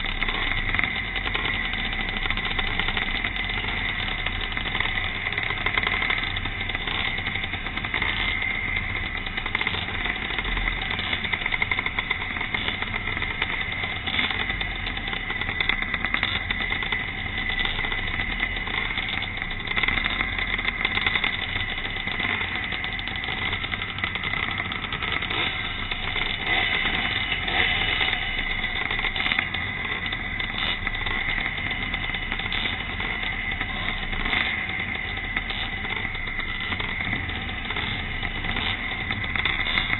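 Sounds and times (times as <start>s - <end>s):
motorcycle engines racing: 0.0s - 39.9s.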